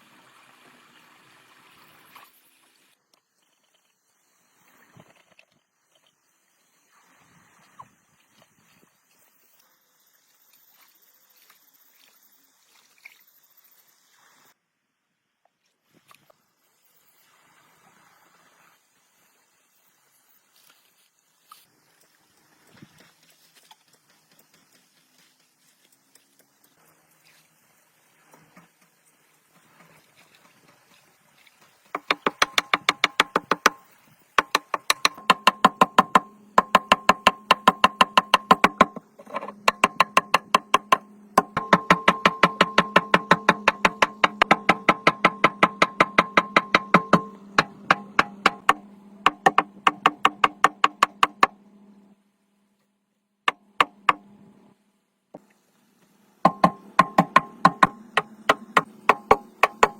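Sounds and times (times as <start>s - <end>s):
rapid knocking on metal: 32.0s - 33.8s, 34.4s - 51.6s, 53.5s - 54.2s, 56.5s - 59.9s.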